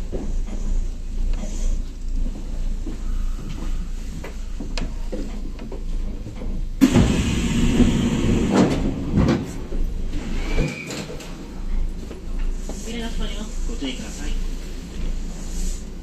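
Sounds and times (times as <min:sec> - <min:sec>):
stopped train rumbling: 0:00.0 - 0:16.0
train doors sliding: 0:03.2 - 0:16.0.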